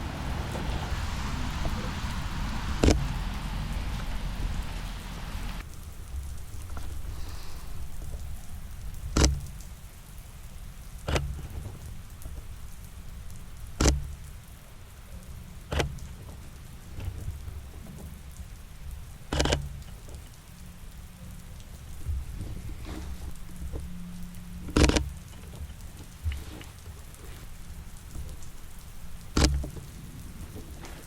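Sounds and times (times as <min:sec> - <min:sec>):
steady rain falling: 0:00.0 - 0:31.0
sharp clicks: 0:02.8 - 0:03.1, 0:09.0 - 0:09.7, 0:13.7 - 0:14.4, 0:19.3 - 0:19.9, 0:29.3 - 0:29.9.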